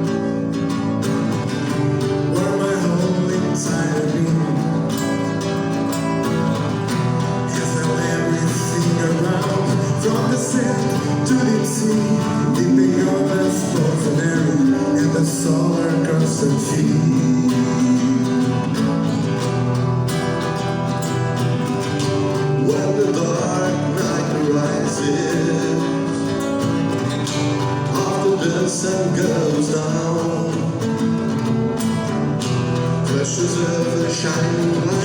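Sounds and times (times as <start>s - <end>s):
live band with lead guitar: 0.0s - 35.0s.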